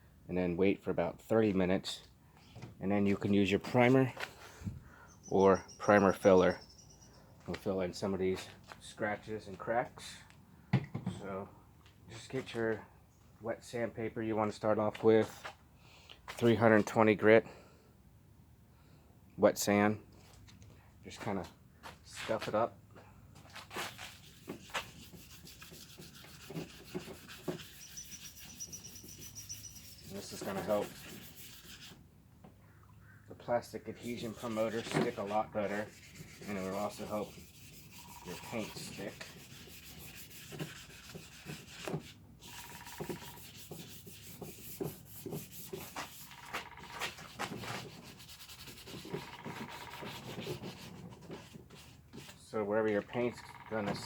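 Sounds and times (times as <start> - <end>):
sandpaper rubbing on plastic: 23.6 - 32.0, 34.0 - 52.5.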